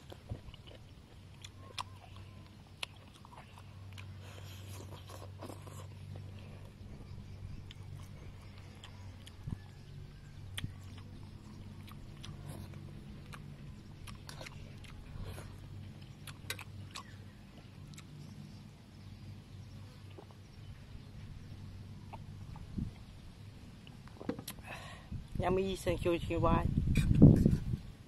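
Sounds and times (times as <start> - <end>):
person chewing food: 0.0 - 18.6, 22.0 - 23.1
steady low hum: 0.0 - 28.0.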